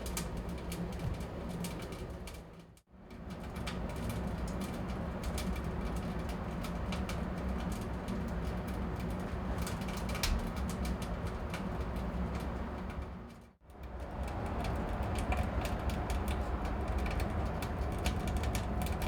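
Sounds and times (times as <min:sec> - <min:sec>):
low rumble of stove draft: 0:00.0 - 0:19.0.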